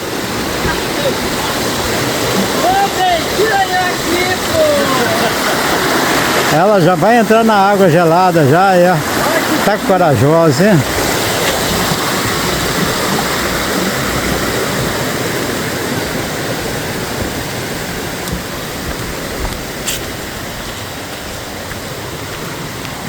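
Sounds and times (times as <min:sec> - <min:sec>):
water rushing over rocks: 0:00.0 - 0:23.0.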